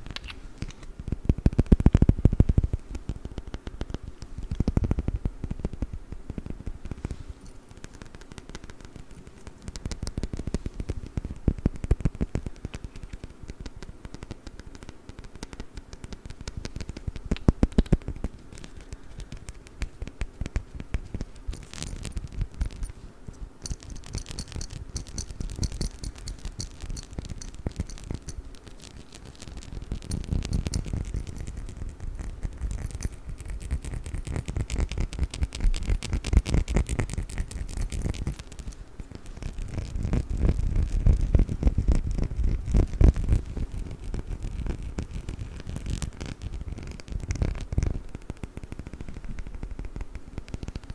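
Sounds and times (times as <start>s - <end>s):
tapping on glass bottle: 23.6s - 28.4s, 30.0s - 31.4s
scraping on glass bottle: 23.6s - 33.9s.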